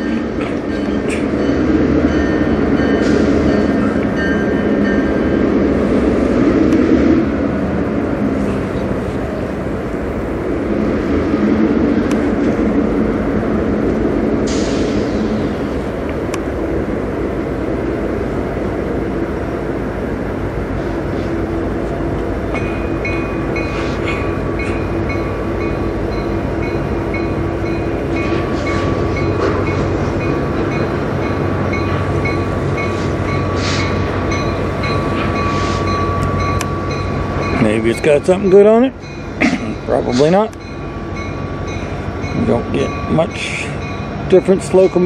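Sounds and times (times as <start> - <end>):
freight train rumbling: 0.0 - 45.0
bell ringing: 24.6 - 40.0.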